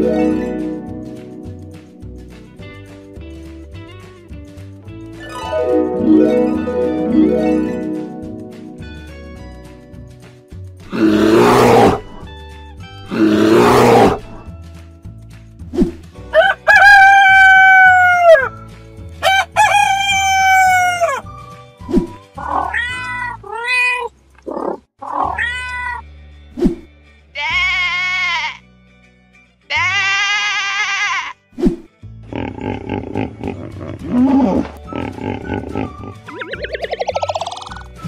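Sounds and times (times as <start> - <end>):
plucked background music: 0.0 - 23.4, 25.2 - 38.0
cartoon growls: 10.9 - 12.2, 13.1 - 14.4, 32.3 - 36.3
rooster crows: 16.3 - 18.5, 19.2 - 21.2
cat meows: 22.4 - 24.1, 25.0 - 26.0
sheep bleat: 27.4 - 28.6, 29.7 - 31.4.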